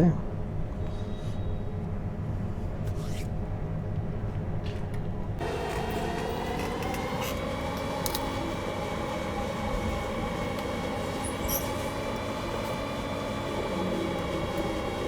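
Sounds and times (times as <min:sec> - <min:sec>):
blower fan rushing and whining: 0:01.7 - 0:15.0.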